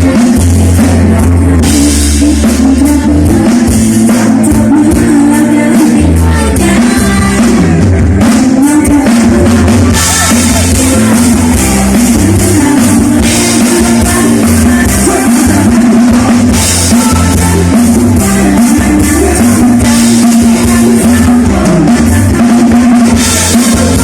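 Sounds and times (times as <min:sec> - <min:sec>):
live band music: 0:00.0 - 0:24.0
woman singing: 0:00.0 - 0:24.0.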